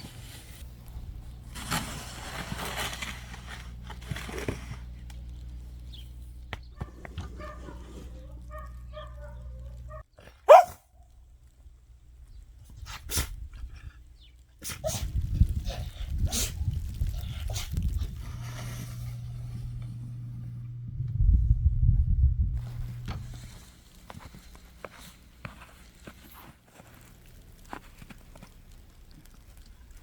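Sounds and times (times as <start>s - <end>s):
dog barking: 6.8s - 10.9s.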